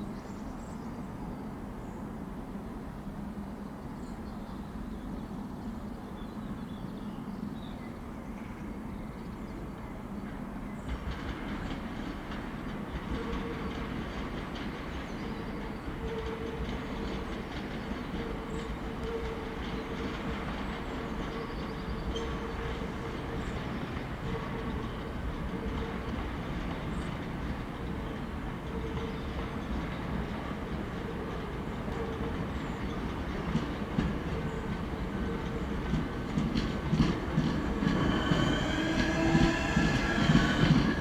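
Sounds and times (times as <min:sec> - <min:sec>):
train rumble: 0:09.5 - 0:41.0.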